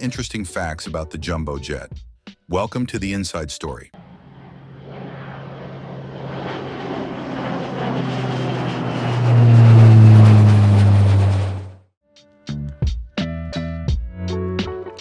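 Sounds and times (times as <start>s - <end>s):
plane passing close: 4.0s - 11.9s.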